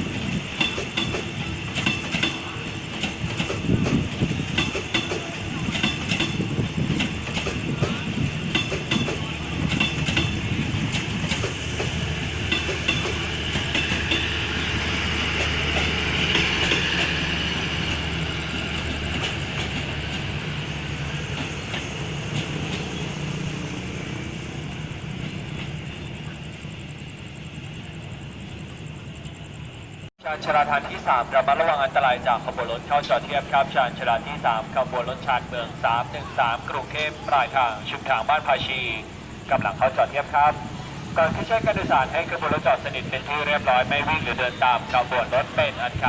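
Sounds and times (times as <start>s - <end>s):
train wheels clicking over joints: 0.0s - 26.7s
train rumble: 0.0s - 46.0s.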